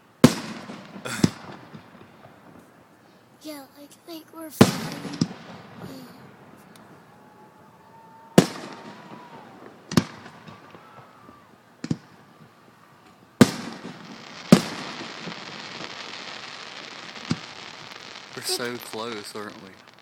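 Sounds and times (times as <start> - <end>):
firework crackle: 4.6 - 20.0
firework shells bursting: 13.4 - 20.0.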